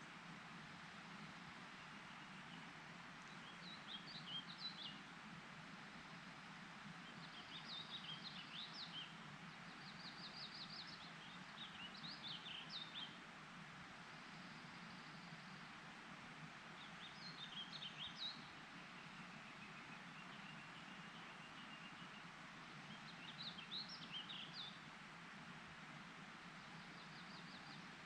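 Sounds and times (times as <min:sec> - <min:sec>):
steady background hiss: 0:00.0 - 0:28.0
songbird chirping: 0:01.7 - 0:05.1, 0:07.0 - 0:13.3, 0:16.8 - 0:25.0, 0:26.6 - 0:28.0.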